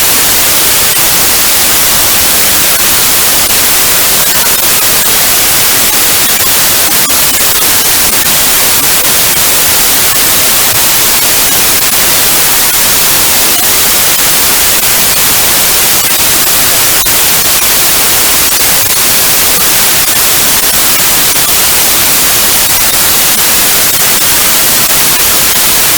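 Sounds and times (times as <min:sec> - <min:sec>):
white noise hiss: 0:00.0 - 0:25.9.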